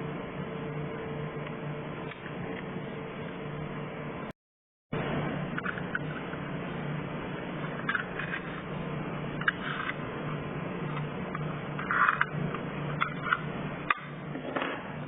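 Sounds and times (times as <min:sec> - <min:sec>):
steady low hum: 0:00.0 - 0:15.0
small clicks and scrapes: 0:07.7 - 0:08.7, 0:09.4 - 0:10.0, 0:10.9 - 0:14.8.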